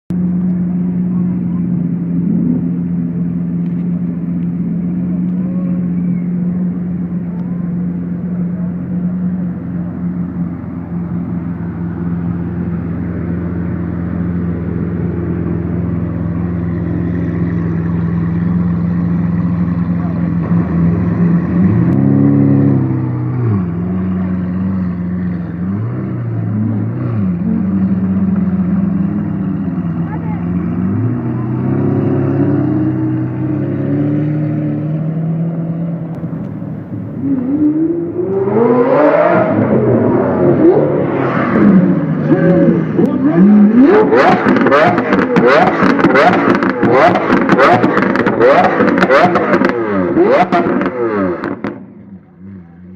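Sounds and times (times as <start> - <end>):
sports car engine idling: 0.1 - 38.6, 39.4 - 52.9
engine revving: 11.3 - 52.9.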